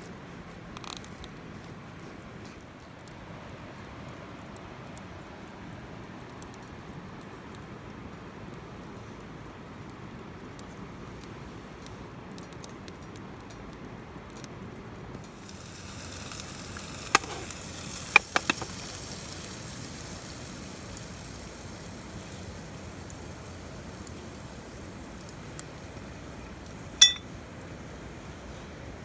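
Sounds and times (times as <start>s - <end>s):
fire hissing and sizzling: 15.2s - 29.0s
sharp pops: 15.4s - 19.6s.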